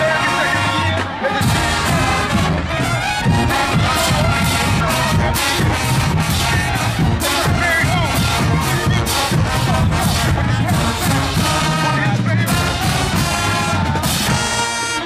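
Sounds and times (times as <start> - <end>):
brass horns: 0.0 - 15.0.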